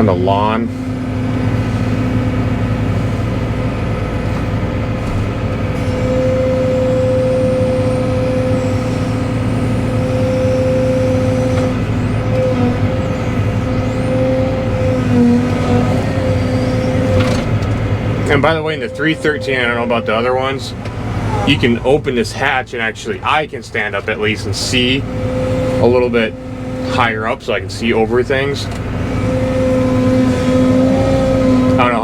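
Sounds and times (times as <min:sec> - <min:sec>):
excavator diesel engine running: 0:00.0 - 0:32.0
high-pitched whine: 0:05.8 - 0:22.6.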